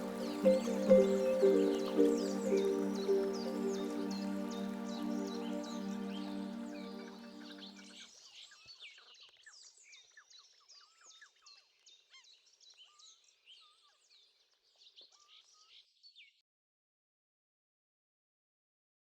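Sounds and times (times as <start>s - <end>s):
chorus of small songbirds: 0.0s - 8.0s.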